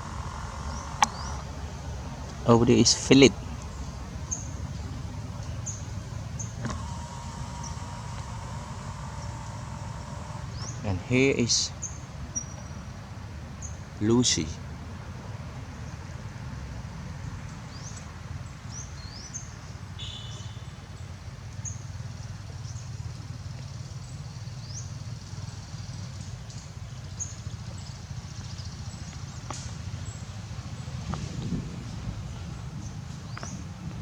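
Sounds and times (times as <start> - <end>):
steady low rumble: 0.0 - 11.4
bird call: 0.0 - 12.8, 20.0 - 20.8
small birds chirping: 0.0 - 14.6, 17.2 - 34.0.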